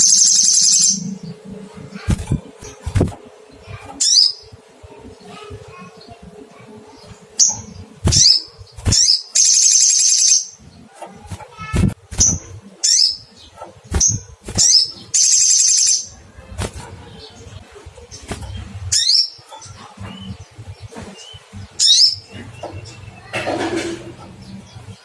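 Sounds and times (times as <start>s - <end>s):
bird high sharp chirps: 0.0s - 1.2s, 7.4s - 10.6s, 11.5s - 16.2s
bird rapid buzzing trills: 0.0s - 10.6s, 11.2s - 16.9s.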